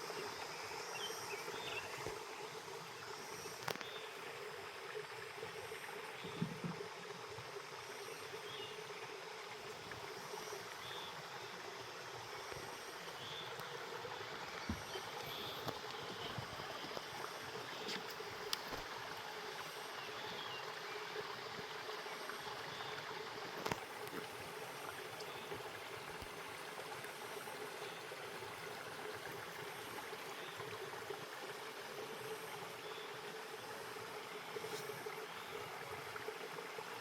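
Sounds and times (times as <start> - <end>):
stream water flowing: 0.0 - 37.0.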